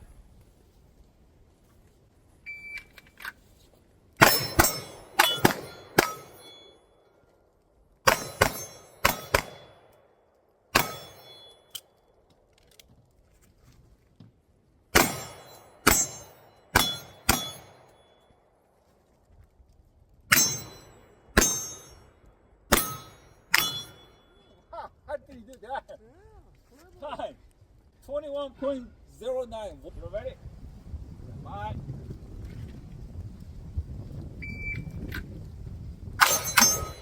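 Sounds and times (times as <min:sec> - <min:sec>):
pistol shots: 0:04.2 - 0:06.6, 0:08.1 - 0:09.9, 0:10.7 - 0:11.6, 0:14.9 - 0:17.9, 0:21.4 - 0:21.8, 0:22.7 - 0:24.0
steel targets ringing: 0:04.2 - 0:07.0, 0:08.1 - 0:09.9, 0:10.8 - 0:11.8, 0:15.0 - 0:18.4, 0:20.3 - 0:24.6, 0:36.2 - 0:37.0
shot timer beep: 0:34.4 - 0:34.9.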